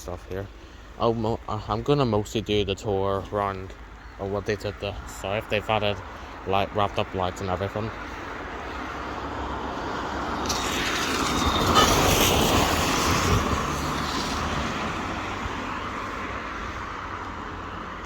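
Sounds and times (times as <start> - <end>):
road vehicle passing: 0.0 - 18.0.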